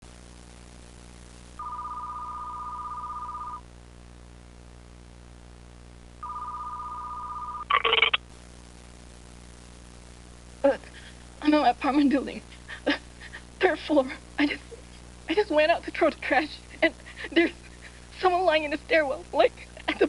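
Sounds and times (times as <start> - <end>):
telephone ringing tone: 1.6 - 3.6, 6.2 - 8.2.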